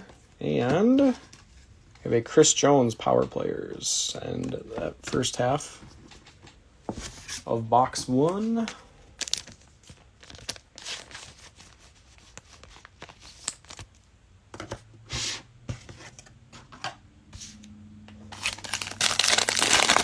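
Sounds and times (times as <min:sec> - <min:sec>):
cards being handled: 0:08.2 - 0:14.0, 0:18.3 - 0:20.0
wrappers tearing and crinkling: 0:09.2 - 0:09.6, 0:18.3 - 0:20.0.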